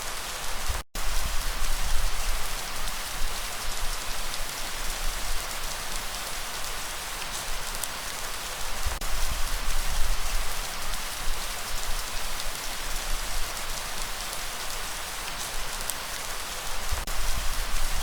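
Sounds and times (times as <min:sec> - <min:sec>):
steady rain falling: 0:00.0 - 0:18.0
low rumble of breeze: 0:16.6 - 0:18.0.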